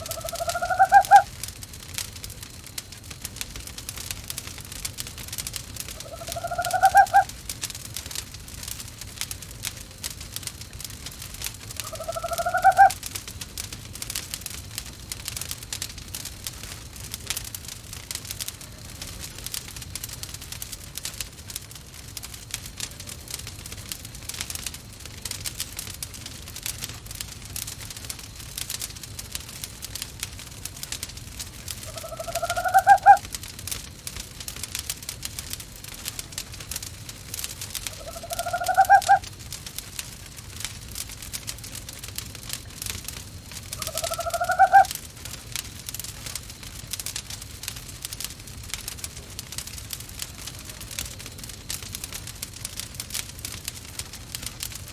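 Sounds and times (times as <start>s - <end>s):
owl call: 0.0s - 1.3s, 6.0s - 7.3s, 11.8s - 13.0s, 31.8s - 33.3s, 37.9s - 39.2s, 43.8s - 44.9s
wood fire crackling: 0.0s - 54.9s.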